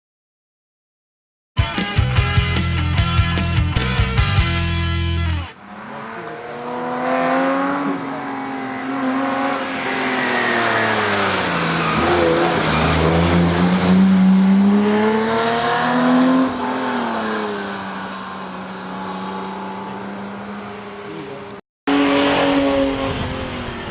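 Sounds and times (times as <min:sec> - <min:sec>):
rally car engine revving: 0:05.2 - 0:23.9.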